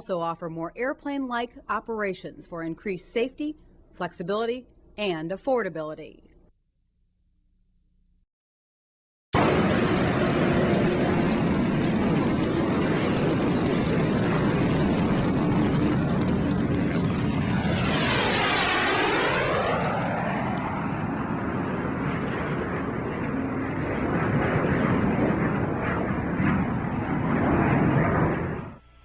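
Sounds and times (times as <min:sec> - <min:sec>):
jet aircraft flying past: 0:09.4 - 0:28.8.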